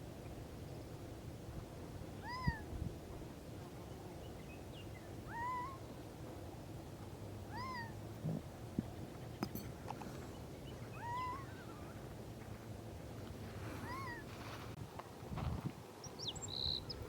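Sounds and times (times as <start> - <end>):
bird calling meow-like notes: 2.2 - 2.7, 5.3 - 5.9, 7.5 - 8.0, 10.9 - 12.0, 13.8 - 14.3.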